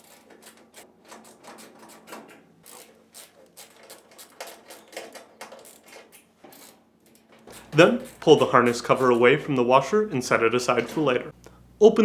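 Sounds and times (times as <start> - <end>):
nut driver clicking and scraping screws: 0.0 - 9.2.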